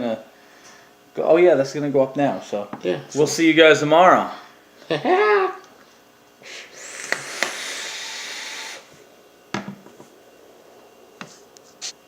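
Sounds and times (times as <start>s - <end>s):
rushing hiss of air: 6.5s - 8.9s.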